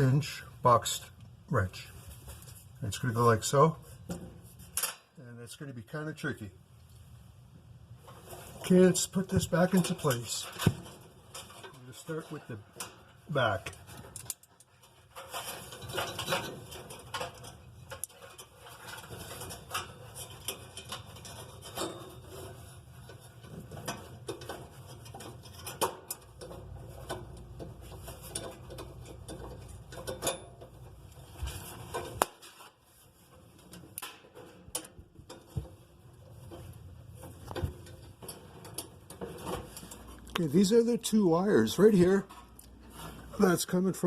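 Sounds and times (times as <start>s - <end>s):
metallic clinks and scrapes: 8.1s - 40.4s.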